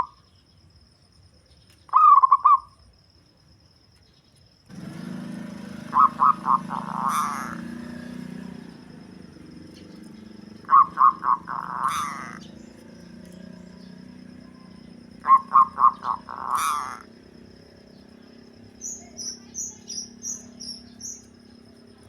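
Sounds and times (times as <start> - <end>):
dove cooing: 4.8 - 21.8.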